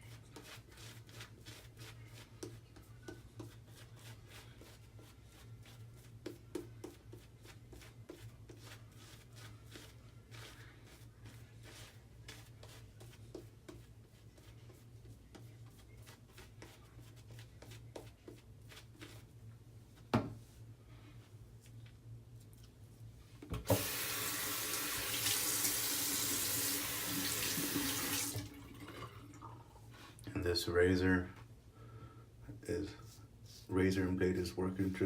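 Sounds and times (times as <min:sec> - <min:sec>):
tap water running into sink: 0:23.6 - 0:29.5.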